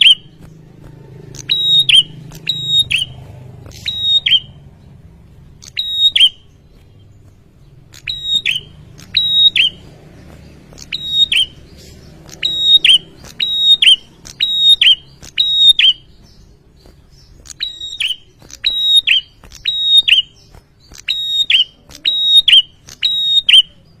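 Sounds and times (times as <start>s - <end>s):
bird calling sharp high notes: 0.0s - 0.4s, 1.4s - 4.6s, 5.6s - 6.6s, 7.9s - 9.9s, 10.8s - 16.5s, 17.4s - 23.8s.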